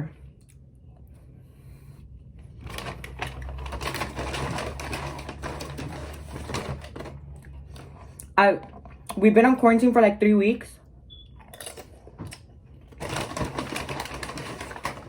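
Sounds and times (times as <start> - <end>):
crackling while eating food: 2.5 - 9.1, 11.4 - 15.0.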